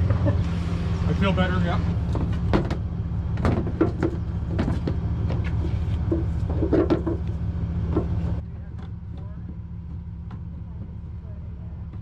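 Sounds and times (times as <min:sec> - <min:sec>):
truck engine idling: 0:00.0 - 0:12.0
short knocks and clunks: 0:02.1 - 0:11.0.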